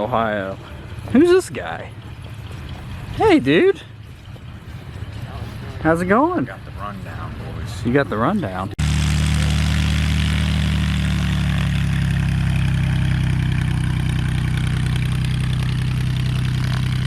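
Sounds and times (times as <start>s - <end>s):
engine idling: 8.8s - 17.0s.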